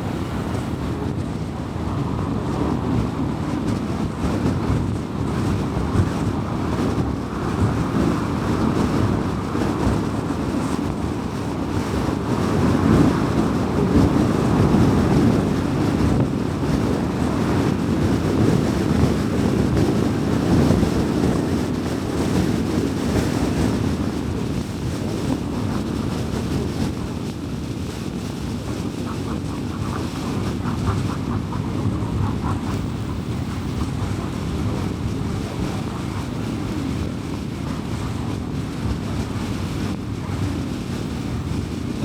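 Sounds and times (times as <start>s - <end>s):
tyre and road noise: 0.0s - 42.0s
car engine hum: 28.6s - 38.6s.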